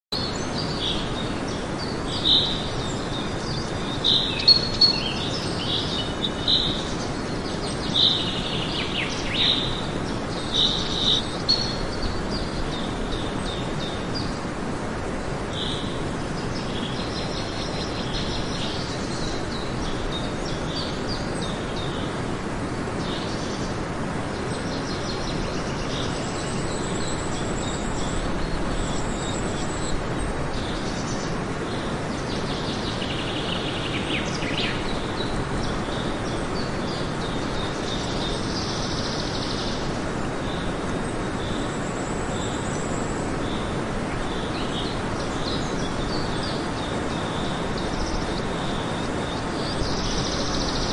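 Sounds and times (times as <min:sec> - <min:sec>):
birds chirping: 0:00.2 - 0:50.9
steady background hiss: 0:00.2 - 0:50.9.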